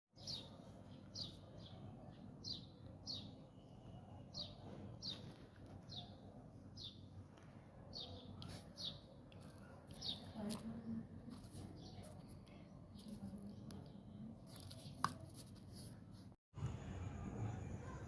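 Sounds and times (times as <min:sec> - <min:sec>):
small bird chirping: 0:00.2 - 0:07.1, 0:07.9 - 0:15.0.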